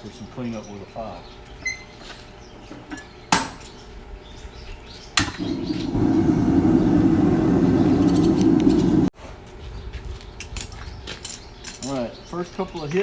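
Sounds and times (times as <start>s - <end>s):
loud steady roar: 5.3s - 9.1s.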